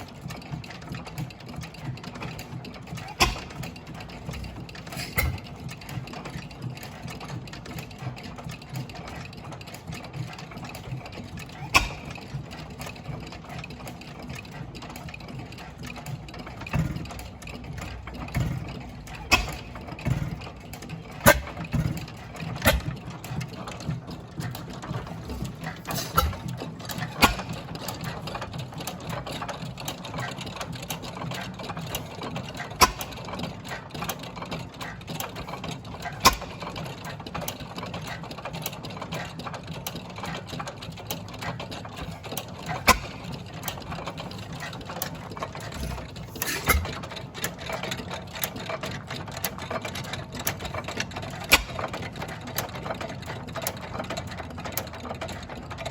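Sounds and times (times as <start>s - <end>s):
stationary gas engines clattering: 0.0s - 55.9s
engine firing pops: 3.0s - 5.6s, 11.7s - 12.5s, 16.7s - 23.8s, 24.4s - 28.2s, 31.9s - 34.1s, 36.0s - 36.8s, 42.0s - 43.8s, 45.0s - 47.2s, 51.4s - 52.0s.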